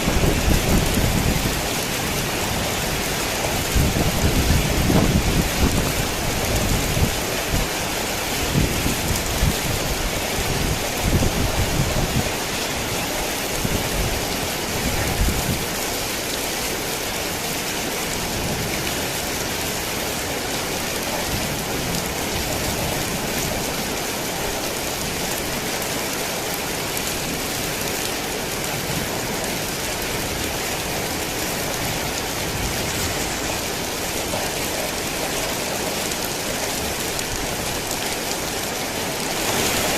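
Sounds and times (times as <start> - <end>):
thunder rumbling: 0.0 - 7.6
heavy rain pouring: 0.0 - 39.9.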